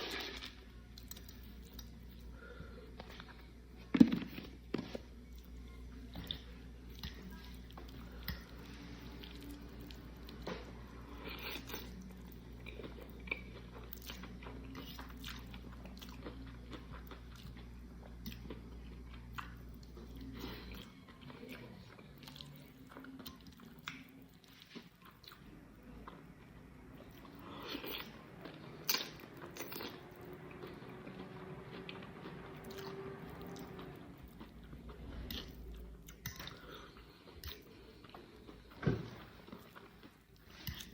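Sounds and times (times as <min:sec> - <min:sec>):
chewing pasta: 0:00.0 - 0:40.9
low steady hum: 0:00.0 - 0:40.9.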